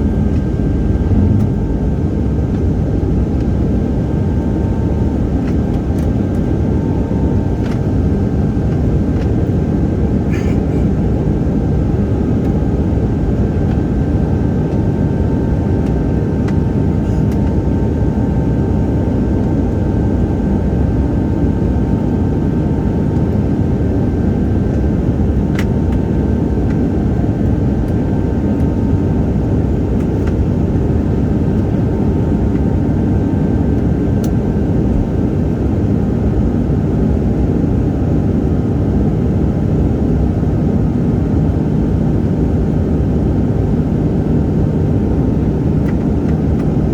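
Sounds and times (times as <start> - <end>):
jet engines roaring at high power: 0.0 - 46.9.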